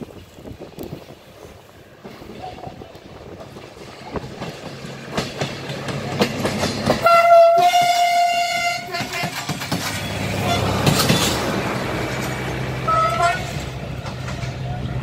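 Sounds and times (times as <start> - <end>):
train rumble: 0.0 - 15.0
wheels clacking over rail joints: 0.0 - 15.0
train horn blast: 7.0 - 9.4, 10.3 - 11.4, 12.8 - 13.6.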